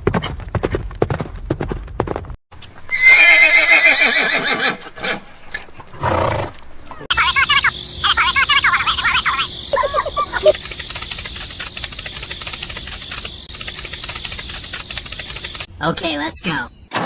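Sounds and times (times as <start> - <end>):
loud drawn-out animal call: 7.1 - 10.6
short fluttering animal calls: 7.1 - 15.7.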